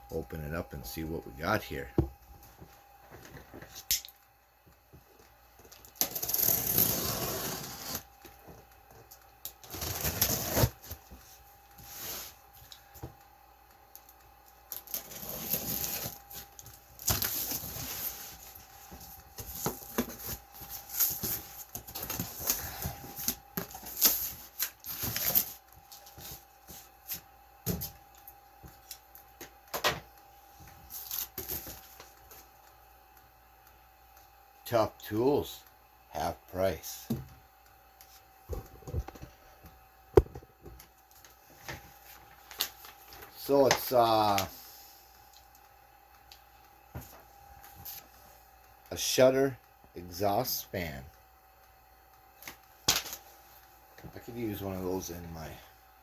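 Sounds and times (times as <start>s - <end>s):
faint steady hum: 0.0s - 56.0s
cardboard rustling and tearing: 6.0s - 8.0s, 9.6s - 11.0s, 14.8s - 18.6s.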